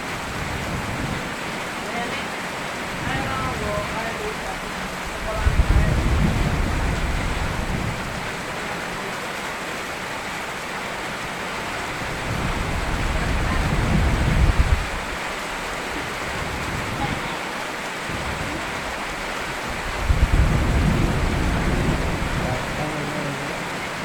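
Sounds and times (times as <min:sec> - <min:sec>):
steady rain falling: 0:00.0 - 0:24.0
rolling thunder: 0:02.9 - 0:08.5, 0:11.7 - 0:17.3, 0:18.0 - 0:24.0.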